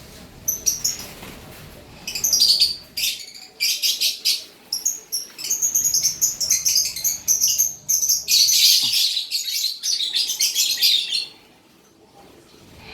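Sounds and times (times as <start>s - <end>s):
lovebirds chirping shrilly: 2.1s - 11.4s.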